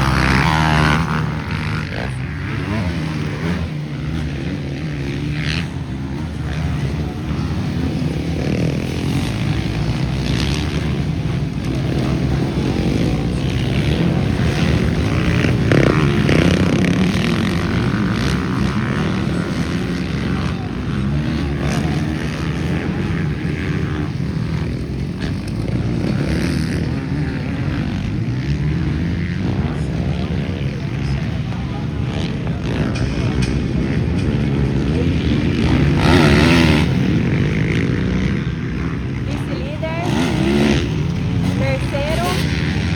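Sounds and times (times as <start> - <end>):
motocross bike engines revving: 0.0 - 42.9.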